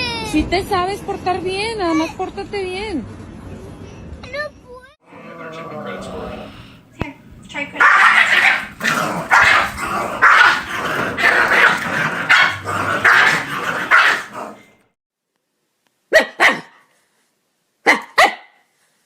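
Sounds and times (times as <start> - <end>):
dog barking: 7.8 - 14.6, 16.1 - 16.9, 17.8 - 18.7.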